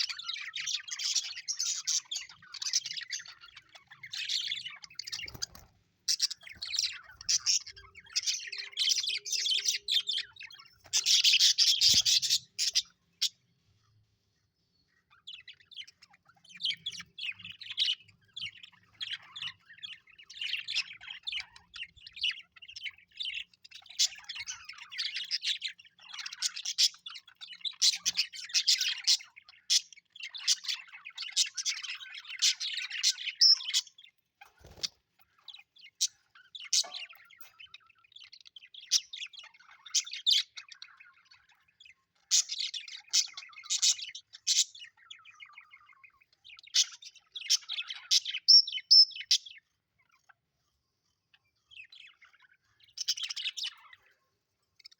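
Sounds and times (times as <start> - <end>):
budgerigars chirping and warbling: 0.0 - 54.9.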